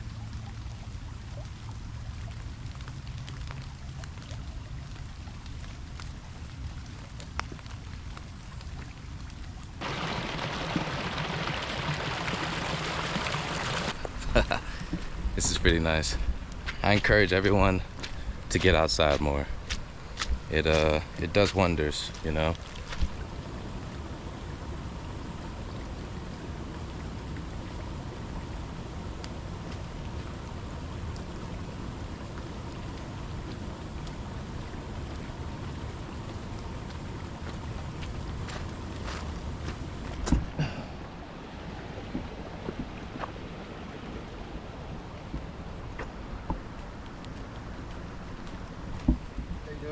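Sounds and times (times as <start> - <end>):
raindrop ticks close by: 0.0 - 40.8
rain falling: 0.0 - 49.9
water hissing: 9.8 - 14.0.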